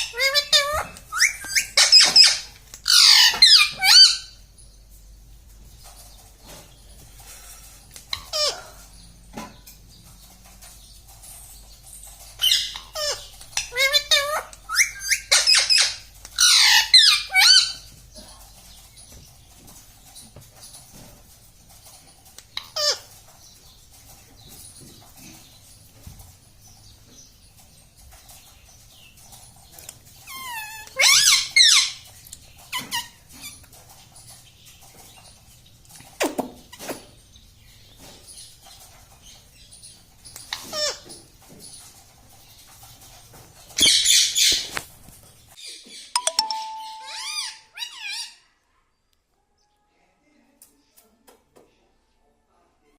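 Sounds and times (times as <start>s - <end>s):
parrot squawking: 0.0s - 4.4s, 12.4s - 17.8s, 30.3s - 32.0s, 46.2s - 48.4s.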